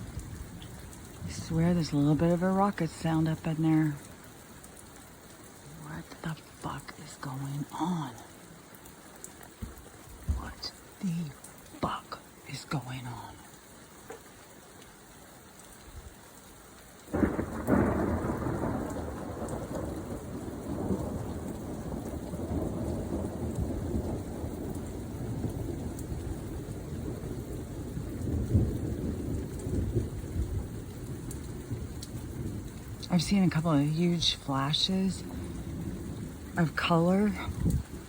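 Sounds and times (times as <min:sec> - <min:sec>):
thunder rumbling: 0:00.0 - 0:04.0, 0:17.1 - 0:38.0.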